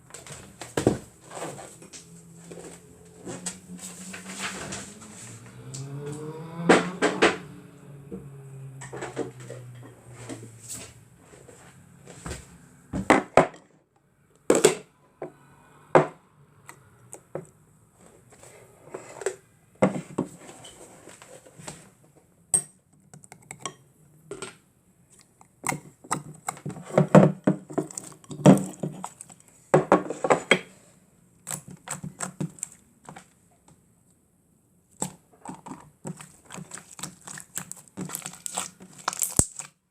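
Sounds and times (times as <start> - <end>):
slime squished by hand: 36.0 - 39.8.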